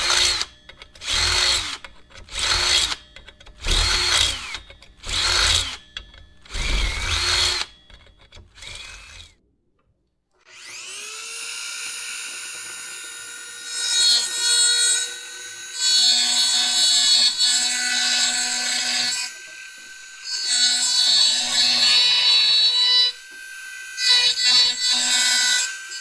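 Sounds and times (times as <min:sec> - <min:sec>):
drill grinding against metal: 0:00.0 - 0:09.4, 0:10.5 - 0:26.0
power drill running: 0:00.0 - 0:09.4, 0:10.5 - 0:16.8.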